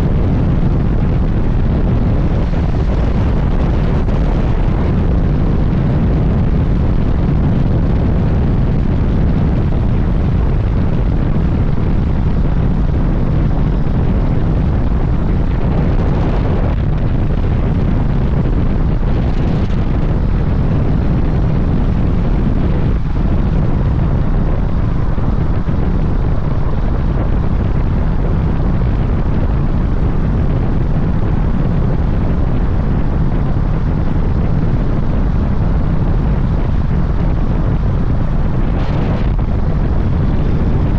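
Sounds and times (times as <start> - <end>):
wind rumble on microphone: 0.0 - 40.9
motorcycle engine running: 35.4 - 40.9.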